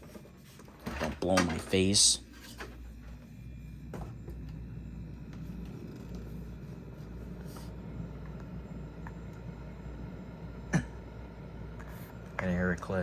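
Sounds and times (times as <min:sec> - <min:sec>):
air conditioner fan humming: 0:00.0 - 0:13.0.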